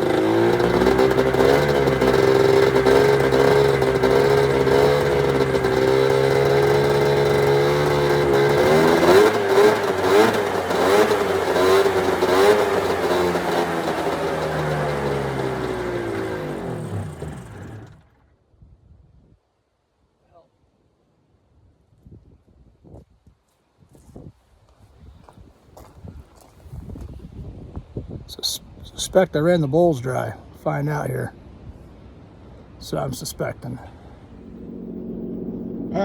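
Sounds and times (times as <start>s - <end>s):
snowmobile engine running: 0.0s - 18.1s, 34.3s - 36.0s.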